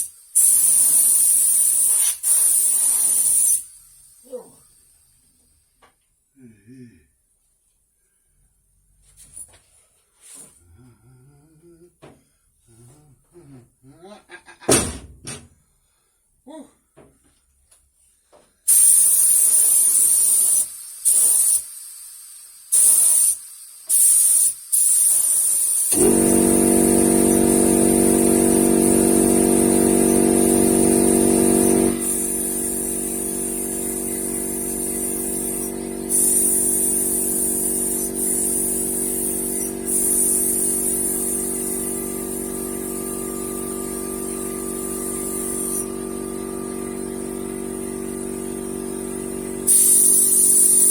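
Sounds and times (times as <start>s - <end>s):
paint spray gun hissing: 0.0s - 3.7s, 18.7s - 50.9s
air compressor motor running: 0.0s - 4.6s, 22.7s - 50.9s.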